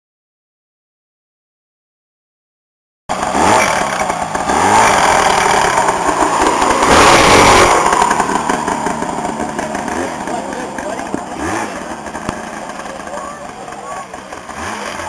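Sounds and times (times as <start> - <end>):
lawn tractor engine revving: 3.1 - 15.0.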